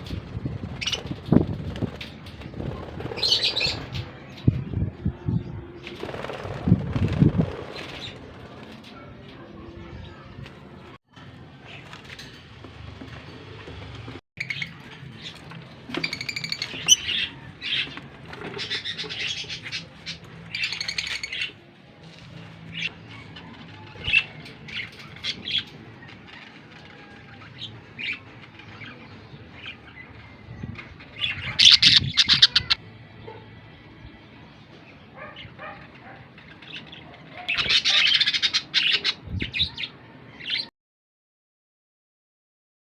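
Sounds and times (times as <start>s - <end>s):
lovebirds chirping and squawking: 0.0s - 9.0s, 14.4s - 33.4s, 34.4s - 40.7s.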